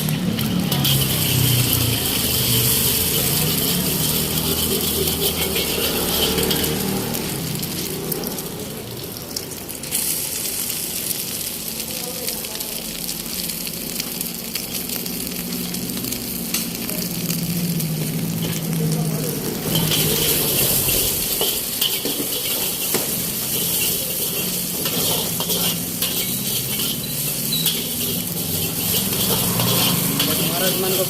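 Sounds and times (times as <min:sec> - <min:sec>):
food sizzling in a wok: 0:00.0 - 0:31.0
metal spatula scraping a pan: 0:00.4 - 0:07.4, 0:19.6 - 0:31.0.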